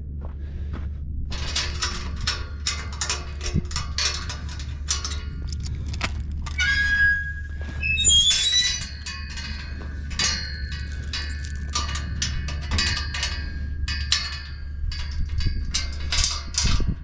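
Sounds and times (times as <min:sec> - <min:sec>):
steady low hum: 0:00.0 - 0:06.6, 0:08.6 - 0:17.0.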